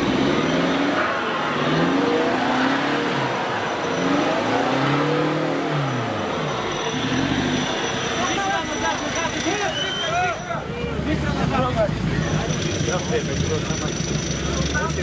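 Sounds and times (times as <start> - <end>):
off-road engine revving: 0.0 - 15.0.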